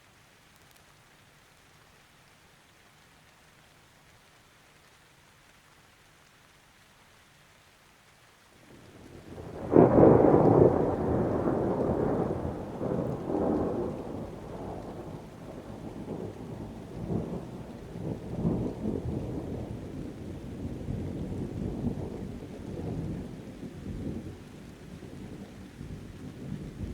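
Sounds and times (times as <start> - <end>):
rain: 0.0 - 26.9
thunder rumbling: 8.7 - 26.9.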